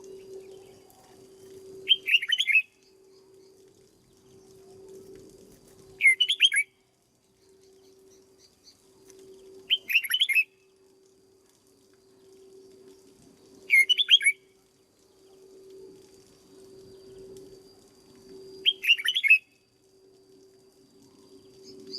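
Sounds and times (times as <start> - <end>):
bulbul chirping song: 0.0 - 4.6, 6.0 - 8.9, 9.6 - 10.6, 13.7 - 14.5, 18.6 - 19.6
faint steady hum: 0.0 - 21.9.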